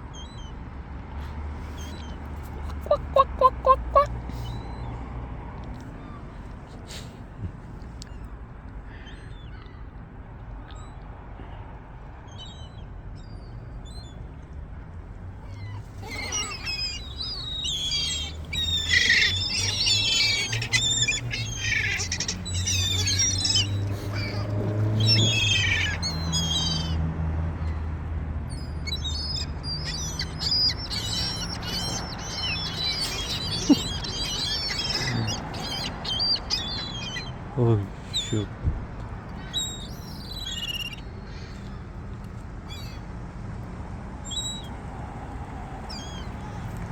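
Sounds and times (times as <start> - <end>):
gulls calling and squawking: 1.8 - 4.9, 15.5 - 27.0, 28.5 - 38.5, 39.2 - 41.9, 42.7 - 43.0, 45.9 - 46.7.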